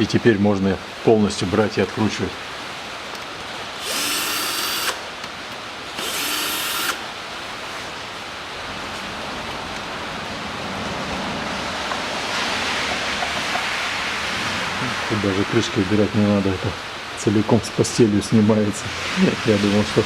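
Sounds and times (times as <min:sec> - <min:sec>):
power tool spinning out bolts: 0:03.8 - 0:05.0, 0:06.0 - 0:07.0.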